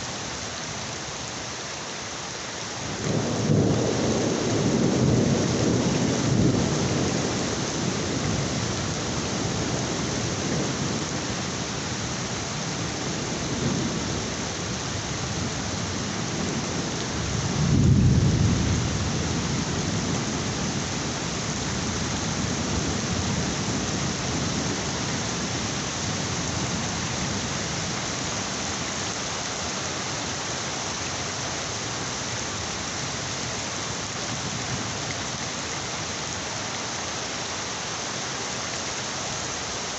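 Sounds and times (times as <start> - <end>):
heavy rain falling: 0.0 - 39.9
thunder rumbling: 17.3 - 20.6.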